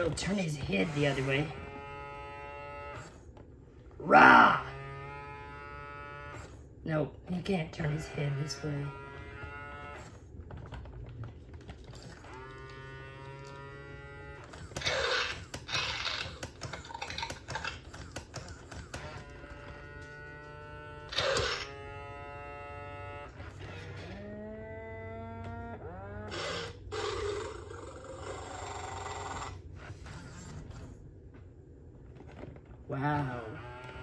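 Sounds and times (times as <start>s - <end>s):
robotic toy electronic growls: 3.9s - 6.6s, 12.0s - 30.9s
toy mechanism clicking: 14.5s - 19.2s.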